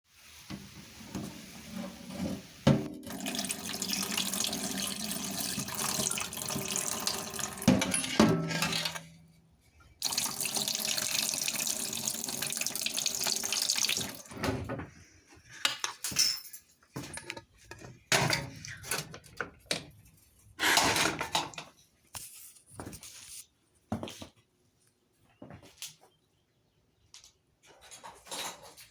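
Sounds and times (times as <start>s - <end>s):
running water from tap: 0.4s - 9.0s, 10.0s - 14.3s.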